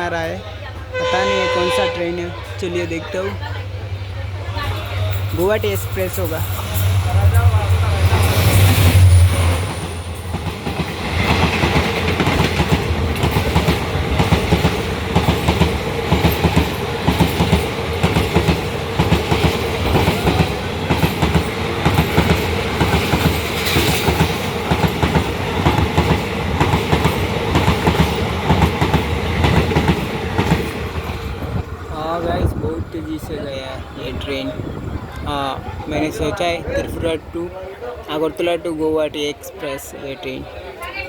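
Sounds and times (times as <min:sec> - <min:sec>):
train wheels clattering: 0:04.6 - 0:31.8.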